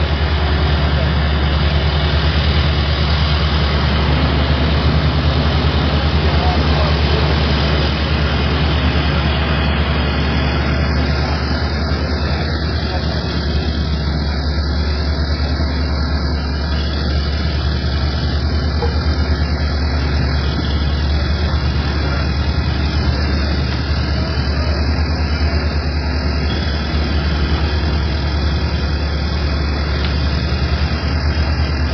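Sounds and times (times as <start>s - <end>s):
low engine hum: 0.0s - 31.9s.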